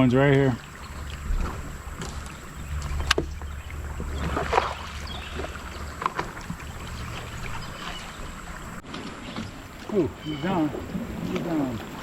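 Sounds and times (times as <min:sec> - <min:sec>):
wind rumble on microphone: 0:00.0 - 0:08.8
water sloshing against kayak: 0:00.0 - 0:12.0.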